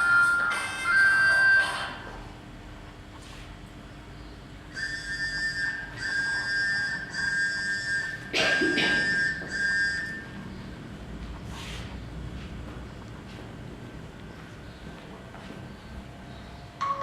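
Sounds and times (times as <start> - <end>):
phone ringtone: 0.0 - 2.0, 4.8 - 10.5, 16.8 - 17.0.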